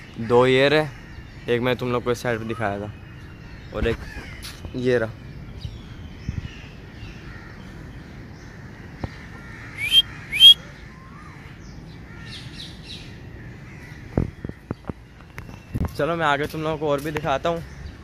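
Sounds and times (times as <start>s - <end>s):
harsh rising bird calls: 5.6s - 15.8s
faint bird chirps: 9.0s - 11.8s.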